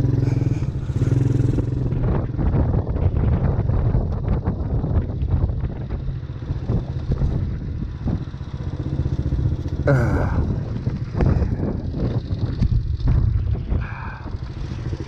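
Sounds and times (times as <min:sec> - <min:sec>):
atv engine running: 0:00.0 - 0:15.0
knocks and clatter: 0:12.5 - 0:13.9.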